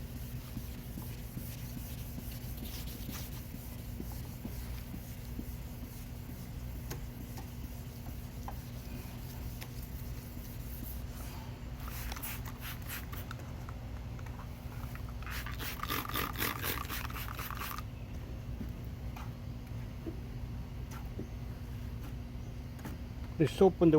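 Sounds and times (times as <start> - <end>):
sandpaper scratching on plastic: 0.0 - 11.2, 15.2 - 17.8
steady low hum: 0.0 - 23.9.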